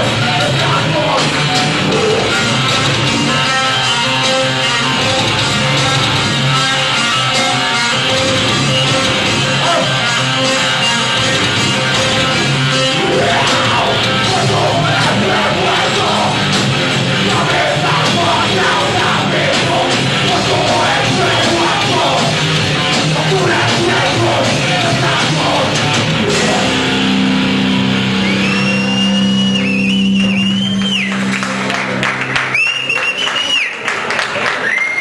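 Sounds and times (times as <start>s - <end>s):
distorted electric guitars: 0.0s - 32.6s
drums: 0.0s - 35.0s
high whistling feedback tone: 28.2s - 31.2s.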